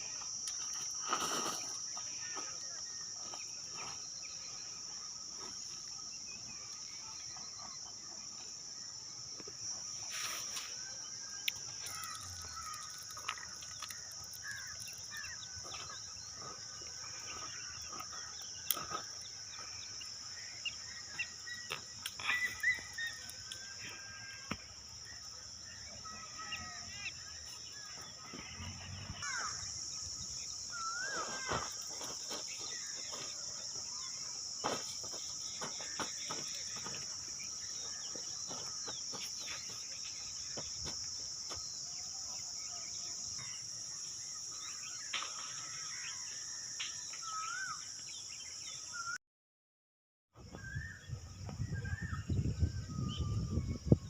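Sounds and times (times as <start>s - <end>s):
insects droning: 0.0s - 49.2s, 50.4s - 54.0s
whistled bird calls: 20.6s - 24.1s, 30.7s - 31.7s.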